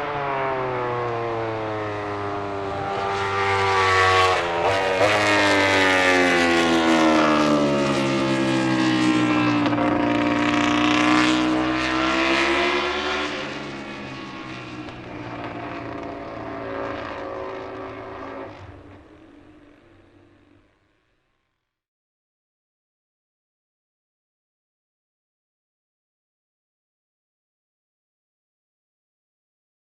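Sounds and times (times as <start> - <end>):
racing motorcycle passing by: 0.0 - 20.9.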